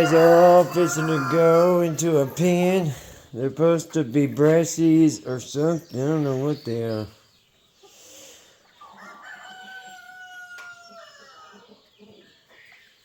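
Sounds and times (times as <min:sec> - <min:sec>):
rooster crowing: 0:00.0 - 0:02.4, 0:08.9 - 0:11.6.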